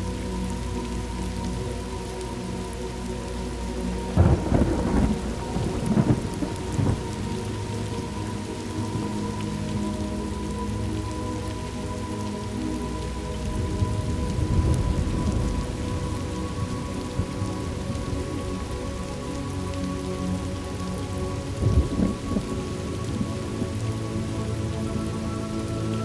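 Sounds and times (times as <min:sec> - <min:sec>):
ambient music drone: 0:00.0 - 0:26.0
steady rain: 0:00.0 - 0:26.0
rolling thunder: 0:04.2 - 0:07.2.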